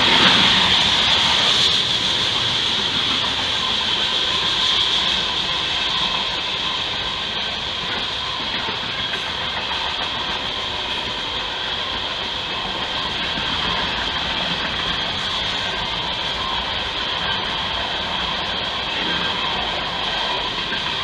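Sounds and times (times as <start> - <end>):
rumble of wheels on rail: 0.0 - 21.0.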